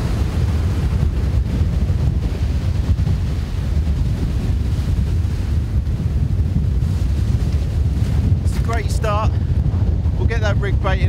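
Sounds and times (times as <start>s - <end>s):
breaking surf: 0.0s - 11.0s
wind buffeting microphone: 0.0s - 11.0s.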